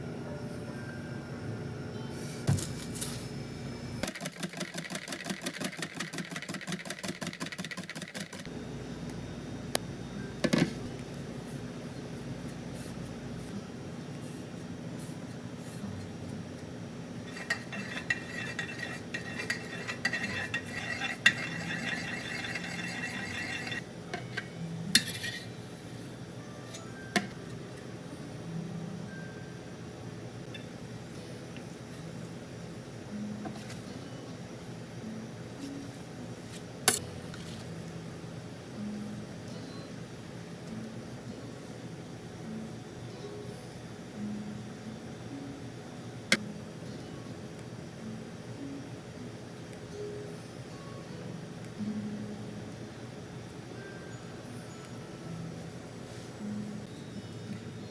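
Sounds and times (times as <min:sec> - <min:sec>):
fast rhythmic stirring strokes: 0:04.1 - 0:08.5, 0:17.2 - 0:23.8
dishes and utensils clinking: 0:17.3 - 0:25.6.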